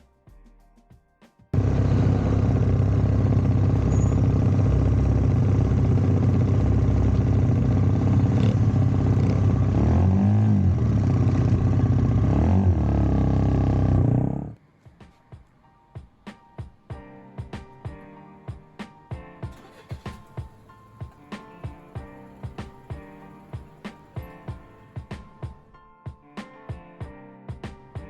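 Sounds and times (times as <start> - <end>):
motorcycle engine running: 1.6 - 14.6.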